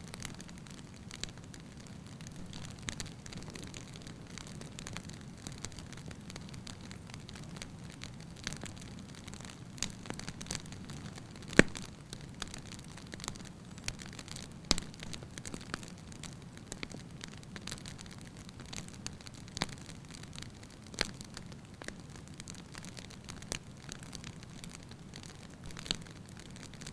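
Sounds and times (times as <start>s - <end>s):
wood crackling and popping: 0.0s - 26.9s.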